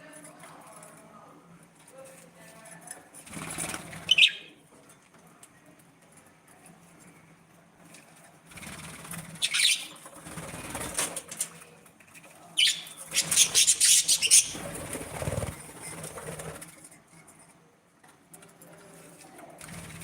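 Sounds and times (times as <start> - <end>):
birds flapping wings: 3.2 - 4.2, 8.5 - 11.6, 13.1 - 16.9, 19.6 - 20.0
bird chirps: 4.1 - 4.5, 9.4 - 10.0, 12.6 - 14.6.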